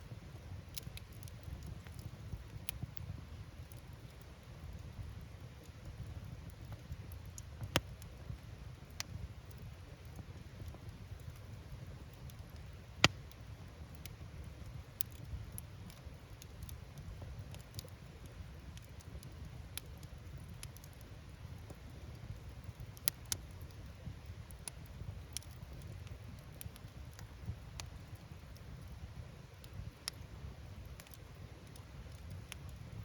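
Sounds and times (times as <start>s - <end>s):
wood fire crackling and popping: 0.1s - 33.0s.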